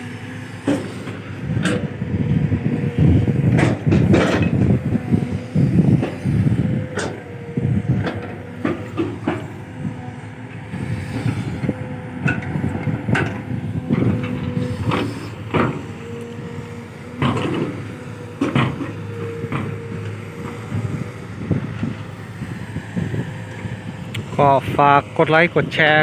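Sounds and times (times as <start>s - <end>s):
excavator engine and hydraulics whine: 0.0s - 26.0s.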